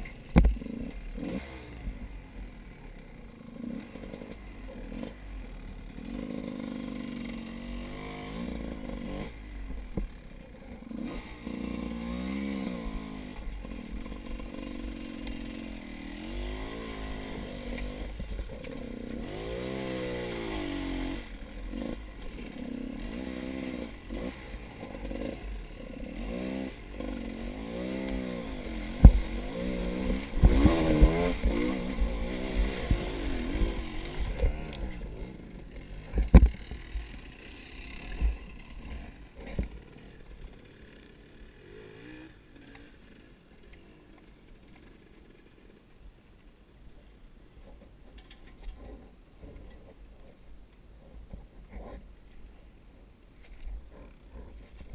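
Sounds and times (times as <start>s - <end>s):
motor vehicle engine revving: 10.9s - 40.1s.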